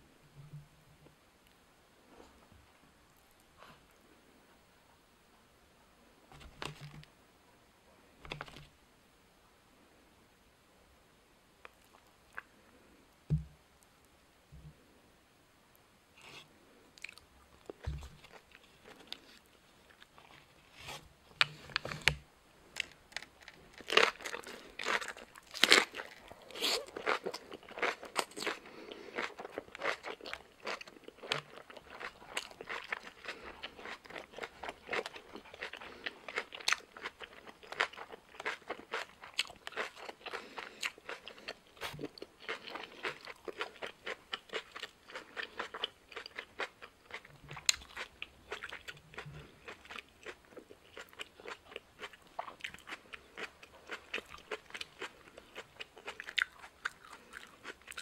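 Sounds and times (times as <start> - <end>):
crunching cabbage while chewing: 17.0 - 58.0.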